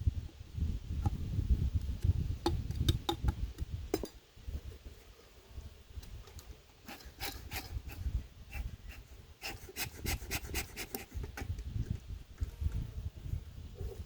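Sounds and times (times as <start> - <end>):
scraping strokes on wood: 6.8 - 11.6.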